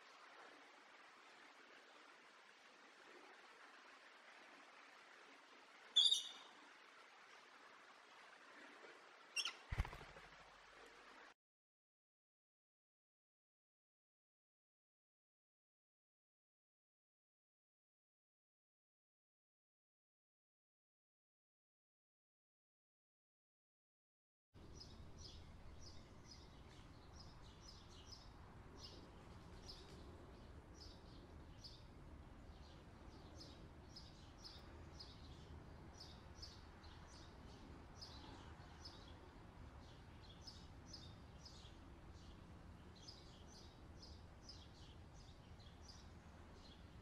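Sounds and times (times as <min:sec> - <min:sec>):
faint high-pitched bird chirping: 0:06.0 - 0:06.5, 0:09.4 - 0:10.1.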